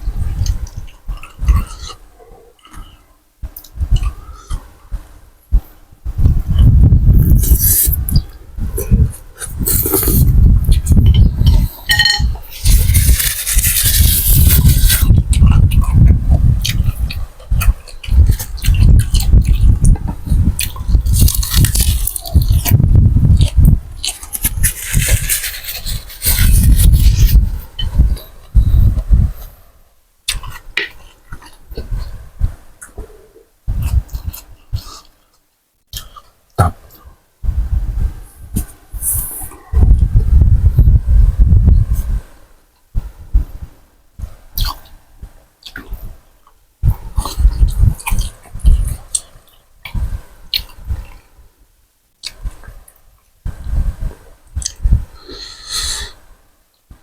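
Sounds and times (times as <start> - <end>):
wet chewing: 6.5 - 29.1, 45.6 - 51.3
slurping noodles and broth: 6.6 - 11.8, 12.5 - 17.2, 18.1 - 27.9.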